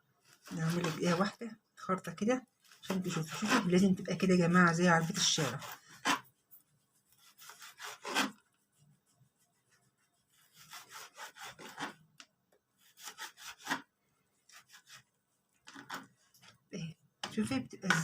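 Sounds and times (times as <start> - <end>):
knife sawing frozen meat: 0.2 - 1.3, 2.6 - 3.9, 5.0 - 6.3, 7.1 - 8.4, 10.3 - 12.0, 12.8 - 13.9, 14.5 - 15.0.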